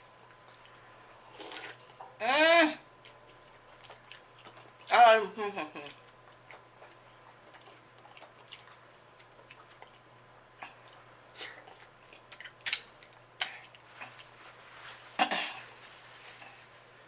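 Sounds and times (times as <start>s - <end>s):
person chewing wetly: 0.2s - 2.0s, 3.0s - 5.0s, 5.8s - 14.4s.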